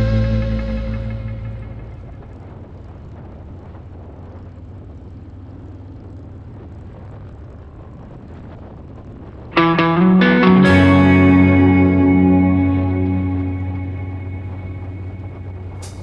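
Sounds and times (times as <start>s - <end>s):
music: 0.0s - 1.9s, 9.6s - 16.0s
motorcycle engine drone: 0.0s - 16.0s.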